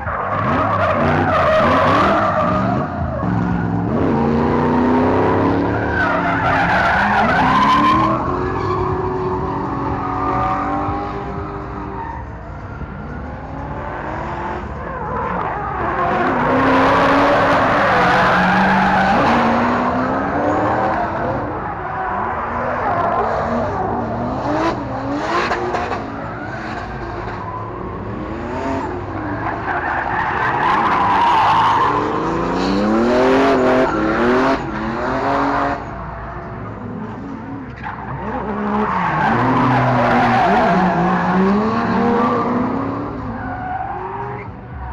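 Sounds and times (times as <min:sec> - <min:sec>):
car engines revving: 0:00.0 - 0:44.9.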